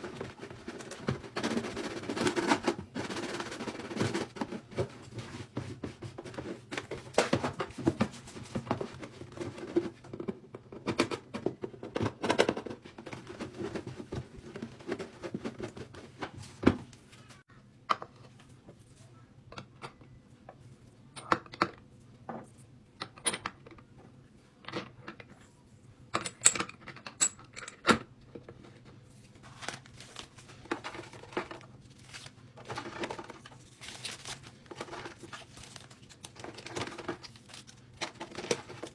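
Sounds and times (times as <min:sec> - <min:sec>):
packaging crinkling: 0:29.4 - 0:38.9.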